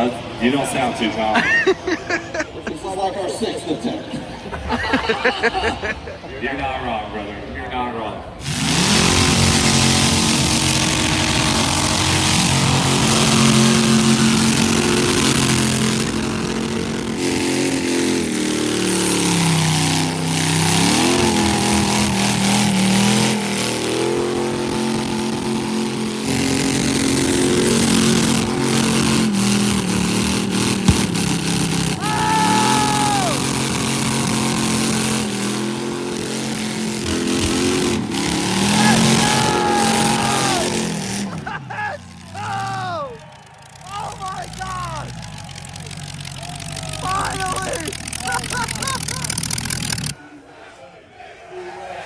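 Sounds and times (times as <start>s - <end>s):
car engine at high revs: 8.4s - 50.2s
tires spinning hiss: 8.4s - 50.2s.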